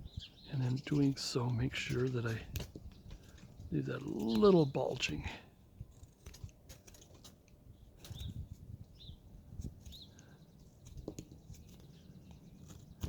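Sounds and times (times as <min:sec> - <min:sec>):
finches chirping: 0:00.0 - 0:05.0, 0:08.0 - 0:13.0
knife carving wood: 0:00.9 - 0:04.8, 0:05.8 - 0:13.0.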